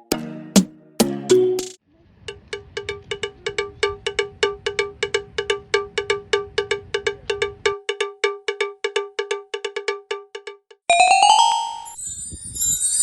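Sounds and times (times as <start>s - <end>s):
cowbell-like metal percussion: 2.3s - 13.0s.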